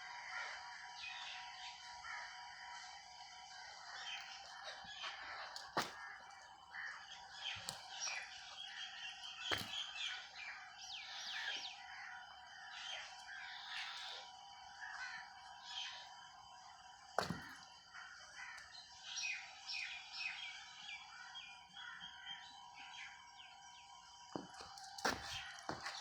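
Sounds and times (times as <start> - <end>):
small birds chirping: 3.6 - 16.2.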